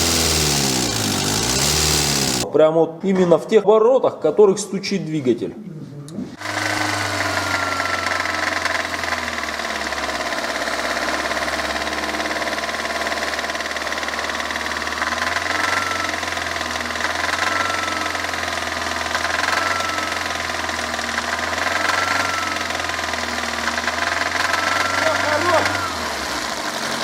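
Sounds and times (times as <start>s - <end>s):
car engine running: 0.0s - 2.4s
metallic engine knocking: 0.0s - 2.4s.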